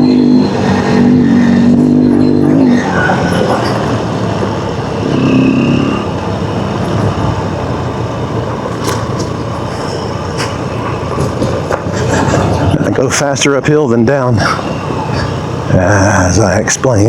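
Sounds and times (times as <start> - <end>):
dirt bike engine: 0.0 - 17.0
rushing noise: 0.0 - 17.0.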